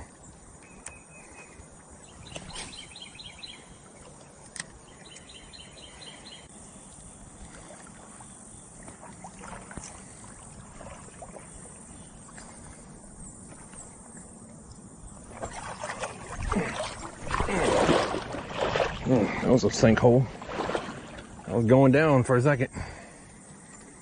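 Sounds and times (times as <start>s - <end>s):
bird singing trill: 0.0s - 4.1s, 4.8s - 7.4s, 10.9s - 17.1s
water sloshing around wading legs: 0.0s - 22.0s.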